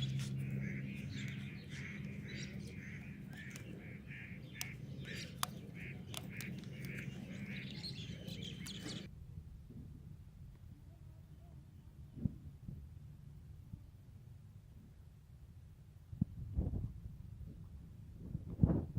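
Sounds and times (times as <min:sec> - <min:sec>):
small birds chirping: 0:00.0 - 0:09.1
sharp clicks: 0:01.1 - 0:09.0.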